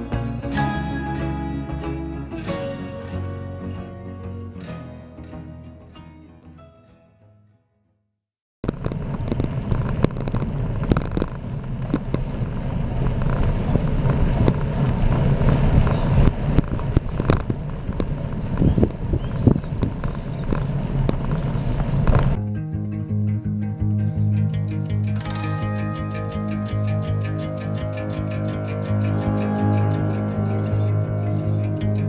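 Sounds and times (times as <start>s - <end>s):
music: 0.0s - 7.6s, 22.4s - 32.0s.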